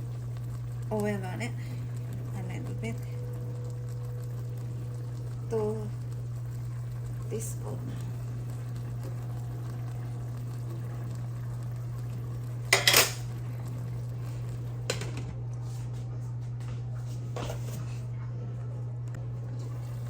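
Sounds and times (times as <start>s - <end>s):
steady low hum: 0.0s - 20.0s
metal utensil clanking on pot: 12.7s - 13.3s.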